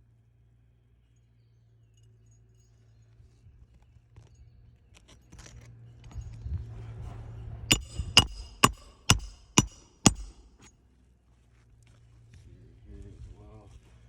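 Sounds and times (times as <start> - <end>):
hammer strikes with metallic ring: 7.7 - 10.7.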